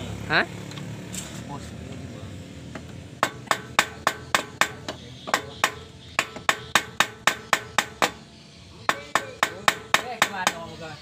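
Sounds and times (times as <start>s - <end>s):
hammer blows on metal: 3.2s - 10.8s.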